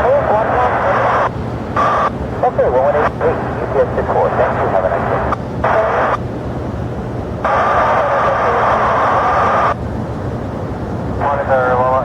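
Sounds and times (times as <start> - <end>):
steady radio tone: 0.0 - 6.2, 7.4 - 9.8, 11.2 - 12.0
jet aircraft rumble: 0.0 - 12.0
radio hiss bursts: 0.4 - 6.2, 7.4 - 9.8.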